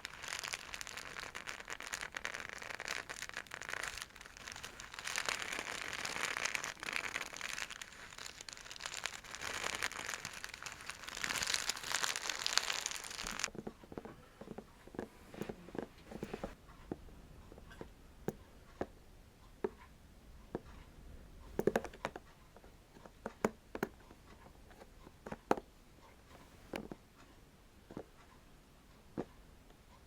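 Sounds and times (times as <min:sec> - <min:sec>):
faint scratching: 0:00.0 - 0:17.8.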